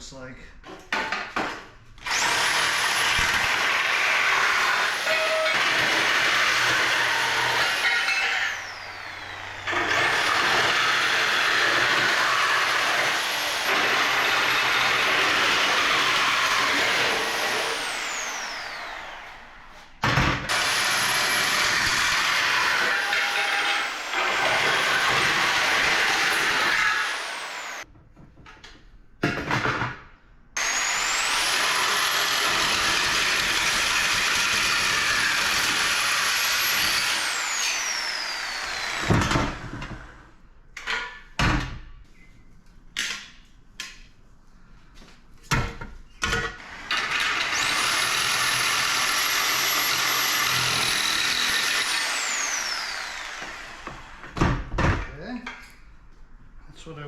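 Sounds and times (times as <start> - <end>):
power tool whining: 2.0 - 27.8, 30.6 - 40.1, 46.6 - 54.4.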